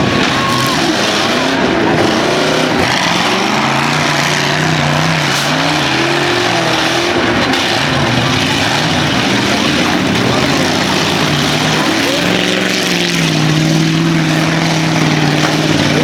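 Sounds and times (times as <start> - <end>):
truck engines revving: 0.0 - 16.0.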